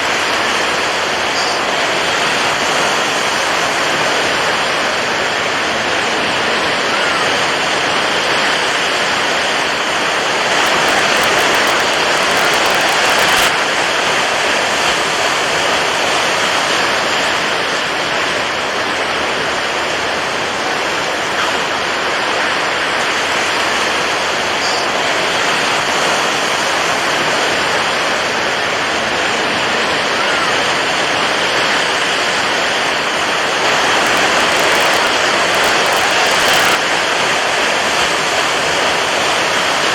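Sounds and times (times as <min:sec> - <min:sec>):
water waves washing: 0:31.8 - 0:36.8.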